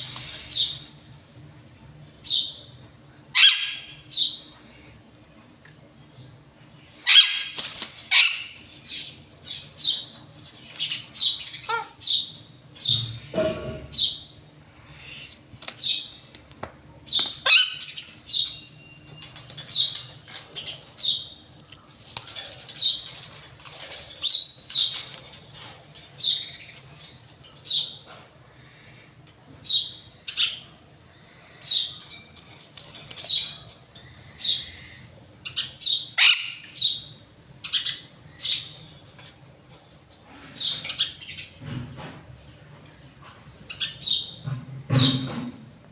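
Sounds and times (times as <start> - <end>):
parrots squawking: 3.3 - 4.0, 7.0 - 10.1, 10.7 - 12.3, 17.3 - 18.6, 34.2 - 37.0.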